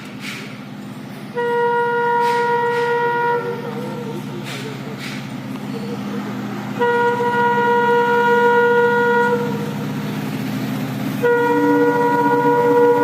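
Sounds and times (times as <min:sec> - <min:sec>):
low rumble of train: 0:00.0 - 0:13.0
train horn blasts: 0:01.3 - 0:04.2, 0:06.7 - 0:09.8, 0:11.2 - 0:13.0.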